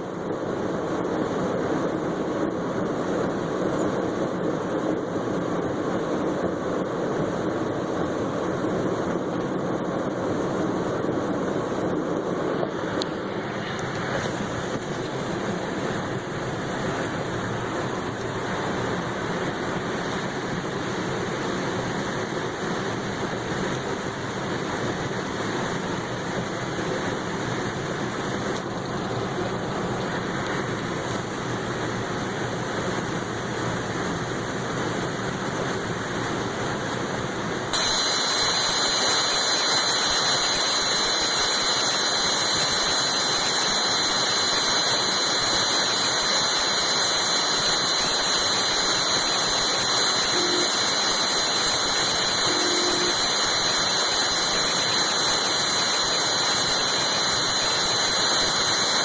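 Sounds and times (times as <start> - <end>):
steady high whine: 0.0 - 59.0
loud hiss: 13.2 - 32.0, 37.7 - 59.0.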